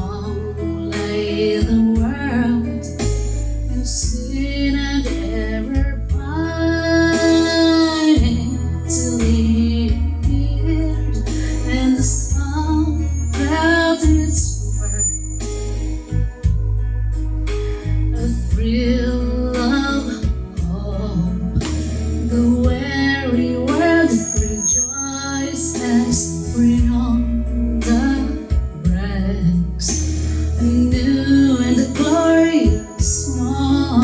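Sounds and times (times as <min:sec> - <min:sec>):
woman singing a carol: 0:00.0 - 0:03.0, 0:03.7 - 0:15.2, 0:18.2 - 0:29.9, 0:30.6 - 0:34.0
instrumental backing with bass: 0:00.0 - 0:34.0.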